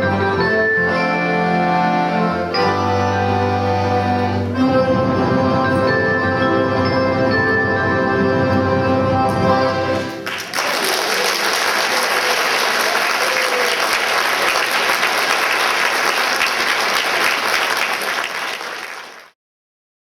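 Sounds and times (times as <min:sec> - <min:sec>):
accordion orchestra chord: 0:00.0 - 0:10.2
audience applause: 0:10.0 - 0:19.4.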